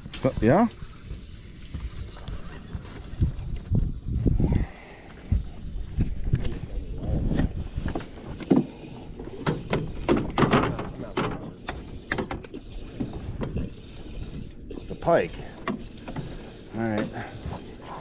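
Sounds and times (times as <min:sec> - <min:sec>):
knocks and clatters on boat: 0:06.0 - 0:18.0.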